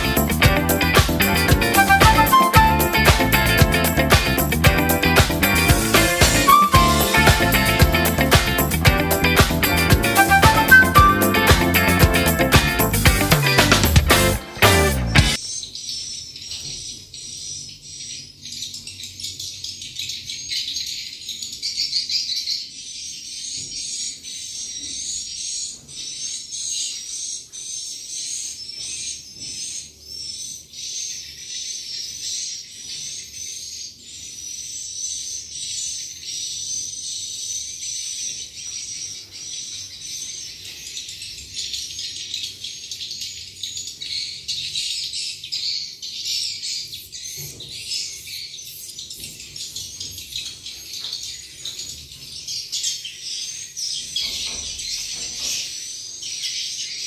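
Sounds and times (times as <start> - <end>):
rapid high bird chirps: 0.0 - 14.4.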